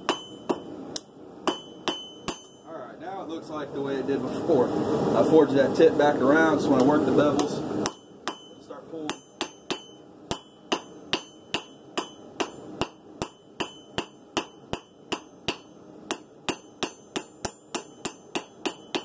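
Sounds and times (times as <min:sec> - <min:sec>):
hammer striking steel on anvil: 0:00.0 - 0:02.7, 0:07.4 - 0:19.0.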